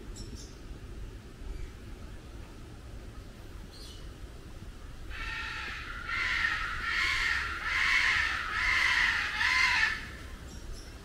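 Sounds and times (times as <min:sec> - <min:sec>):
large bird harsh calls: 0:05.1 - 0:10.2.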